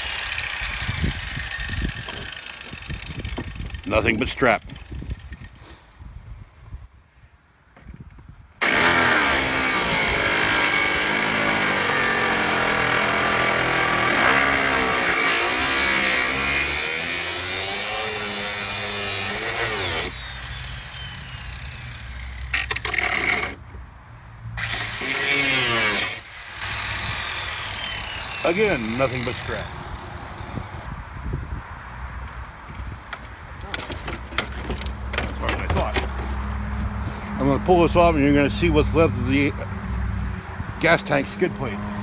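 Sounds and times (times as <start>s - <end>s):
cutoff wheel cutting steel: 0.0s - 5.3s, 8.6s - 23.7s, 24.6s - 31.0s.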